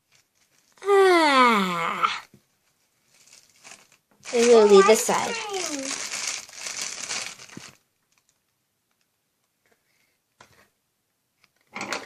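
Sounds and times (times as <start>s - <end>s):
plastic packaging crinkling: 0.0s - 0.9s, 2.6s - 9.1s.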